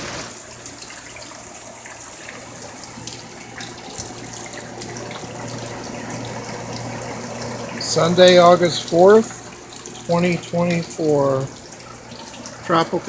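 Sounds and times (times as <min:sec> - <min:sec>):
heavy rain falling: 0:00.0 - 0:00.4
drips and splashes: 0:00.0 - 0:13.0.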